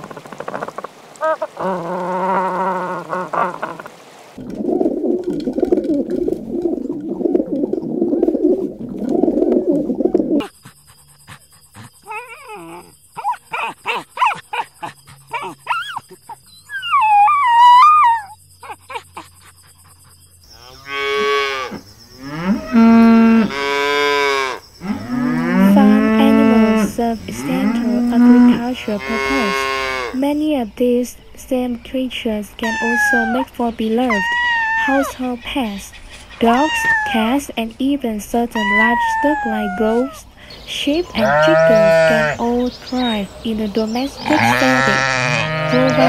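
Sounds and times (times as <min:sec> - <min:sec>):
jumble of animal sounds: 0:00.0 - 0:30.3, 0:32.5 - 0:37.6, 0:38.3 - 0:46.0
cattle mooing: 0:20.6 - 0:30.2, 0:41.2 - 0:42.4, 0:44.3 - 0:46.0.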